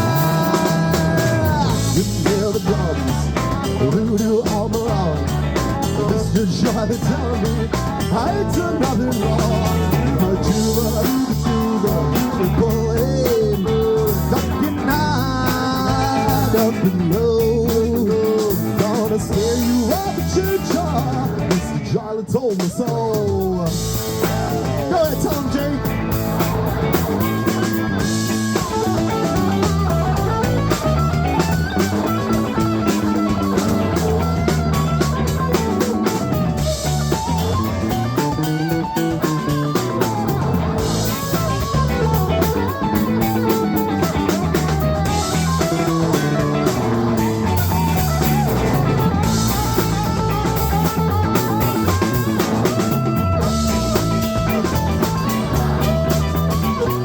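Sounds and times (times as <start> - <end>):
bass guitar groove: 0.0 - 57.0
drum kit: 0.0 - 57.0
lead instrument solo: 23.7 - 57.0.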